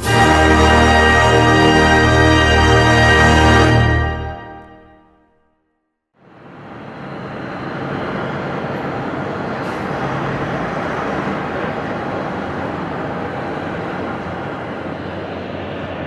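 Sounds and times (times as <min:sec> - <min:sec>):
faint high whine: 0:06.2 - 0:09.4
jet engines running: 0:06.2 - 0:16.0.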